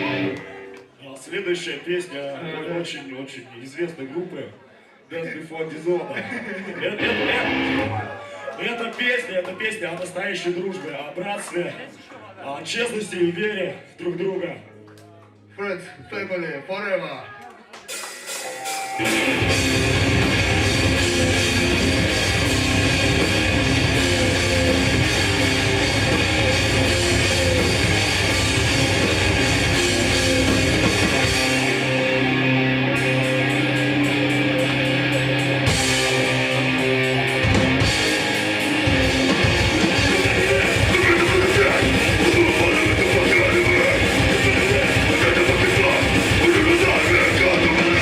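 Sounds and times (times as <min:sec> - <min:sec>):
punk band playing live: 0:00.0 - 0:00.9, 0:06.8 - 0:08.1, 0:17.9 - 0:48.0.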